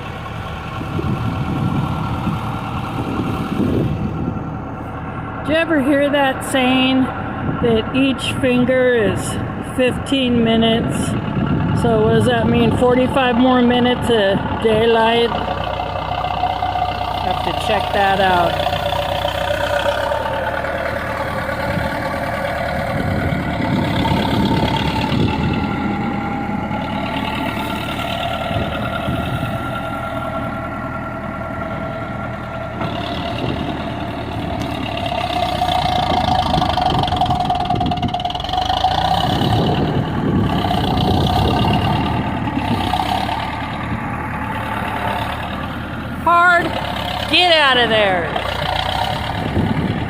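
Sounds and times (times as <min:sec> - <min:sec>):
diesel engine running: 0:00.0 - 0:50.0
whining tone: 0:08.0 - 0:50.0.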